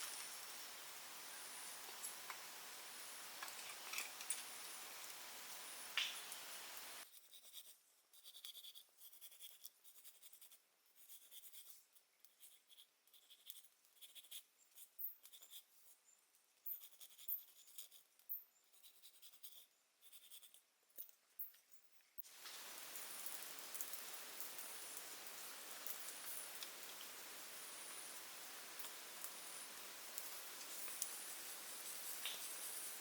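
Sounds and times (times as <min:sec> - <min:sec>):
steady hiss: 0:00.0 - 0:07.0, 0:22.2 - 0:33.0.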